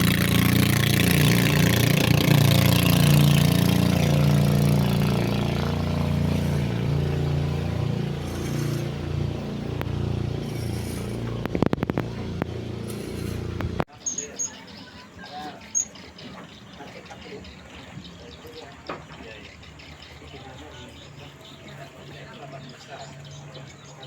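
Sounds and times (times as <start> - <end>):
boat engine running: 0.0 - 13.9.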